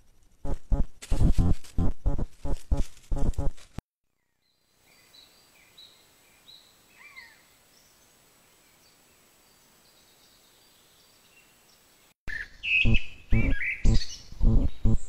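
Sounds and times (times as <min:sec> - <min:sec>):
small birds chirping: 0:04.2 - 0:15.0
quiet hiss: 0:04.4 - 0:15.0.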